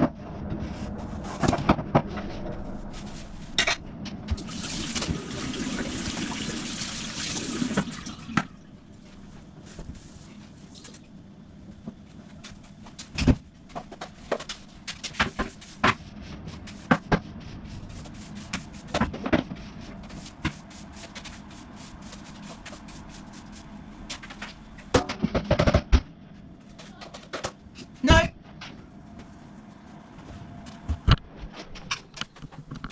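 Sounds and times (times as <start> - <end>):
steady low hum: 0.0 - 5.7, 7.9 - 32.9
household objects knocking and clattering: 24.9 - 26.1.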